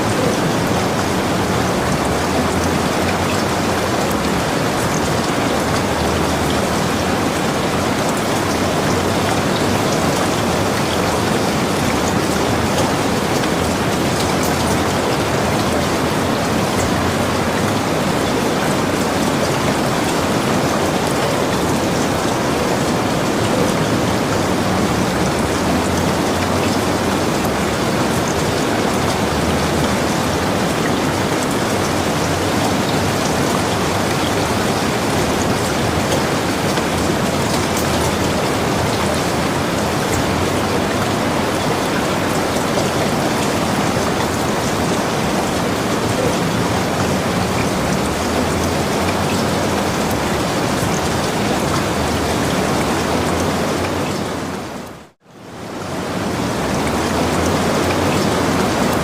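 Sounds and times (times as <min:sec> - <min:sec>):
raindrop patter: 0:00.0 - 0:59.0.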